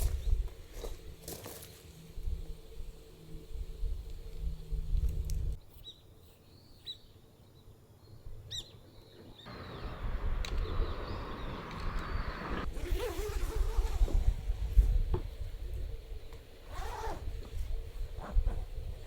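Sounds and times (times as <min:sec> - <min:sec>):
bird chirps: 0:08.5 - 0:12.7.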